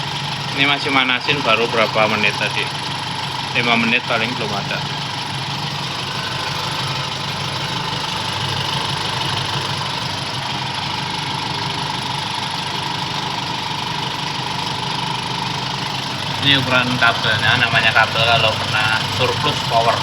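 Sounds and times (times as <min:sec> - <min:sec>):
petrol engine idling: 0:00.0 - 0:20.0.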